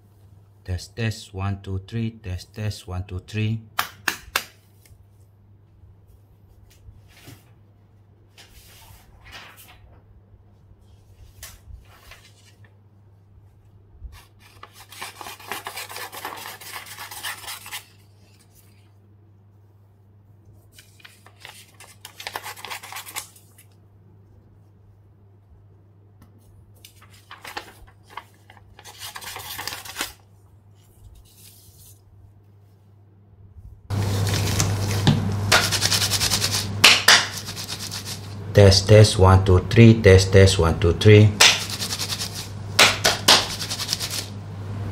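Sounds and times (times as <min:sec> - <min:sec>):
paper rustling: 0:08.3 - 0:10.1, 0:10.8 - 0:12.8, 0:14.1 - 0:19.0, 0:20.6 - 0:23.8, 0:26.8 - 0:32.1, 0:33.9 - 0:38.4, 0:41.4 - 0:44.3
scissors snipping paper: 0:14.2 - 0:18.0, 0:20.9 - 0:23.7, 0:34.2 - 0:38.3, 0:41.4 - 0:44.3
gloved hands rubbing together: 0:34.0 - 0:38.4, 0:41.4 - 0:44.3.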